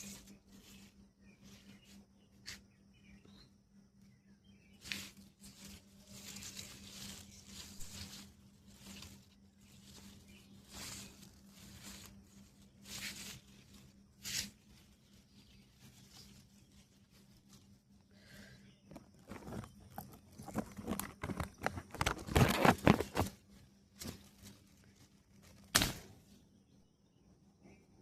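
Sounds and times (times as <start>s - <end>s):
faint steady hum: 0.0s - 28.0s
plant leaves rustling and tearing: 4.8s - 18.0s, 19.0s - 26.2s.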